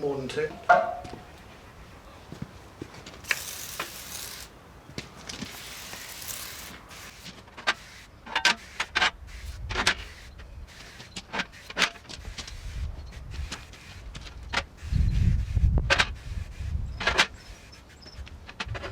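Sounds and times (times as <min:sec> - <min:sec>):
parts clicking and knocking: 0:02.4 - 0:07.8
degreaser spray hissing: 0:02.6 - 0:08.0.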